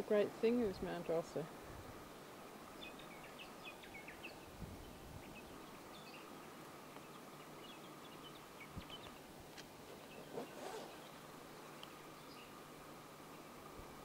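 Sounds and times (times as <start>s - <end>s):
low hiss: 0.0s - 14.0s
small birds chirping: 2.1s - 12.6s.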